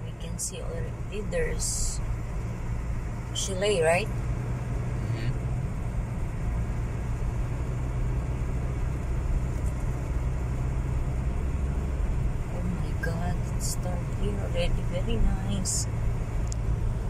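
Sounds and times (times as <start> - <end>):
car driving on gravel: 4.1 - 17.0.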